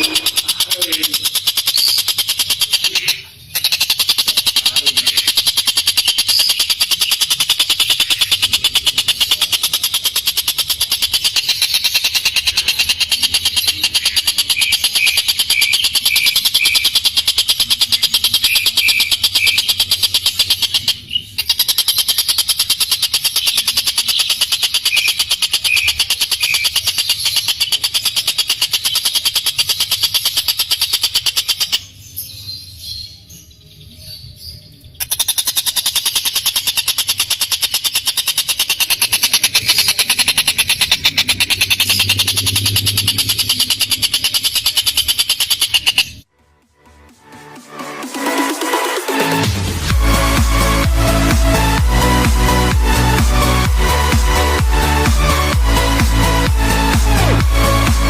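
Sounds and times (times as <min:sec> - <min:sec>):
bird harsh rattling call: 0:00.0 - 0:31.9, 0:35.0 - 0:46.3
faint bird chirps: 0:00.0 - 0:46.3.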